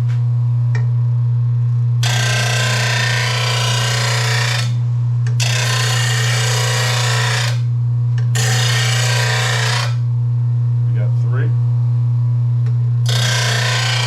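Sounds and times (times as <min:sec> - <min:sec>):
steady motor hum: 0:00.0 - 0:14.0
blade sharpener grinding metal: 0:02.0 - 0:04.8, 0:05.4 - 0:07.7, 0:08.3 - 0:10.0, 0:13.0 - 0:14.0.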